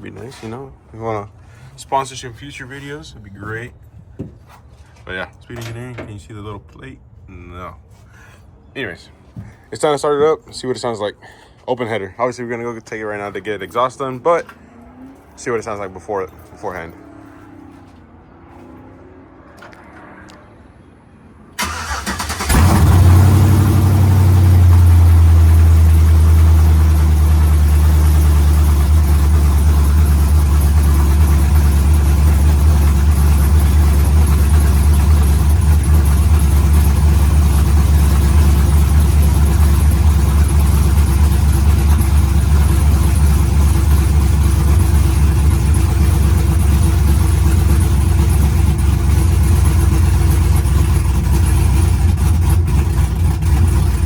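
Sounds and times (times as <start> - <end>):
car engine cranking and idling: 21.5 - 54.0.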